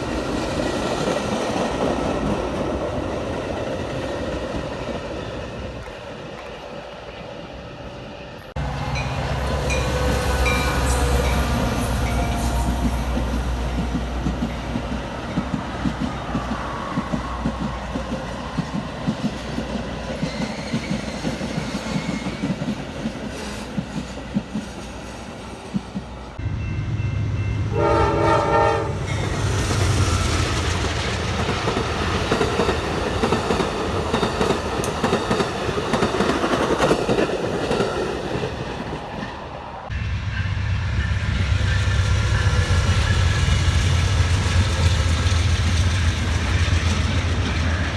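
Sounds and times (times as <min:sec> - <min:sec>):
train horn: 0:08.6 - 0:13.7, 0:26.4 - 0:29.5.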